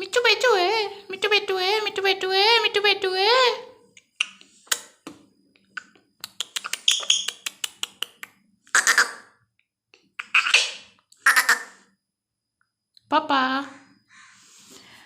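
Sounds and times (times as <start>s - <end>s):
parrot clicking: 5.8s - 8.3s
parrot squawking: 6.5s - 7.4s, 8.7s - 9.3s, 10.2s - 11.8s.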